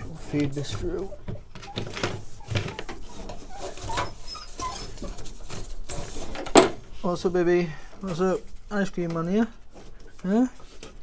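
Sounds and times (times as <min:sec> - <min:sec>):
dog whimpering: 0:00.0 - 0:05.6
clicks and rustles of parts handled: 0:00.0 - 0:07.2.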